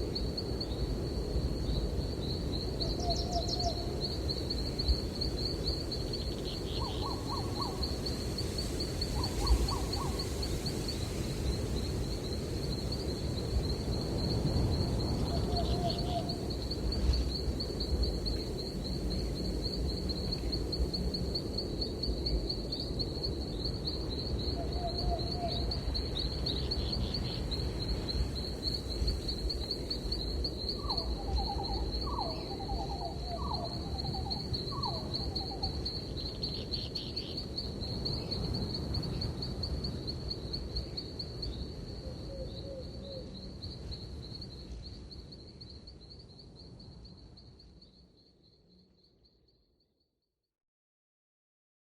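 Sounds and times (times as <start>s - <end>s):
insect trilling: 30.1s - 37.4s.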